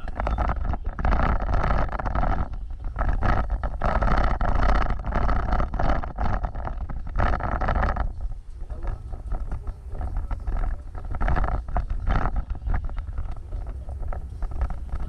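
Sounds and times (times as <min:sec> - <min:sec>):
off-road vehicle rumbling: 0:00.0 - 0:15.0.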